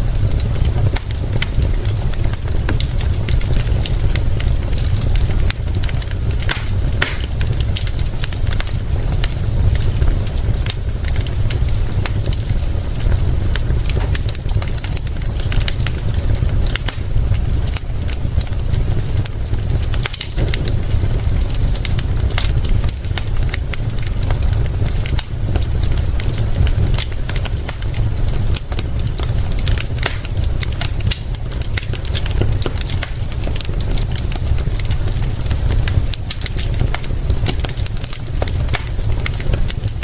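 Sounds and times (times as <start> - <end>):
rain hissing: 0.0 - 40.0
steady low rumble: 0.0 - 40.0
wood fire crackling and popping: 0.0 - 40.0.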